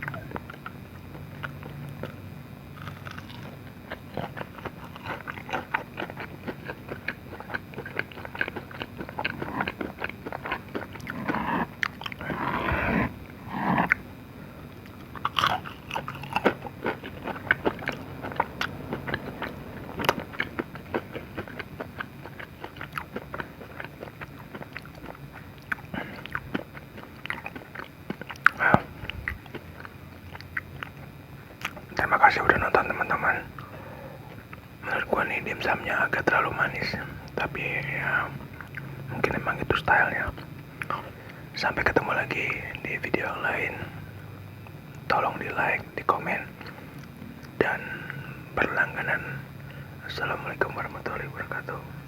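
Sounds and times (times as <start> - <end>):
person chewing and biting food: 0.0 - 14.1, 14.7 - 33.7.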